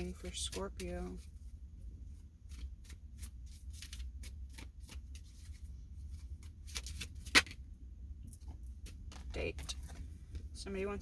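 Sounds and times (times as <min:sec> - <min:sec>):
cards being shuffled: 0:02.4 - 0:07.6, 0:08.3 - 0:10.5.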